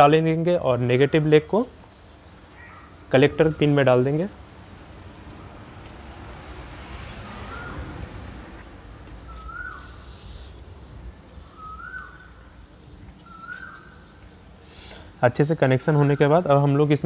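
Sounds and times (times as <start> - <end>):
bird calling: 0.9 - 3.9, 7.0 - 8.2, 9.2 - 15.1.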